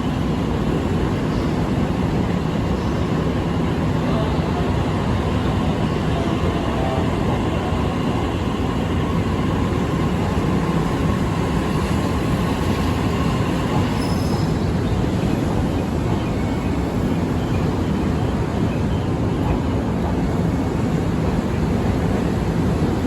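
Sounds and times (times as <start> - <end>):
electric train running: 0.0 - 18.0
faint high squeals: 13.8 - 14.7.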